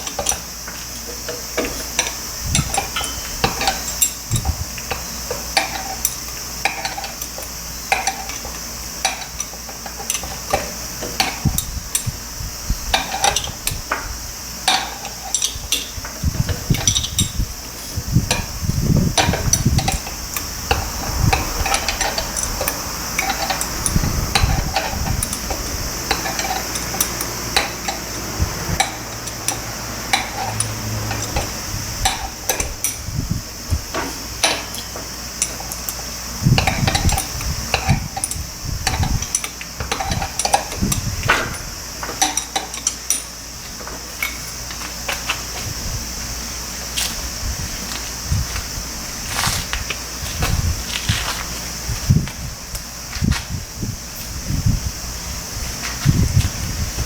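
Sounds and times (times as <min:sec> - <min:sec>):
hand tools clinking on metal: 0:00.0 - 0:12.1, 0:19.2 - 0:28.2, 0:28.8 - 0:33.0, 0:34.0 - 0:45.4
steady high hiss: 0:00.0 - 0:57.0.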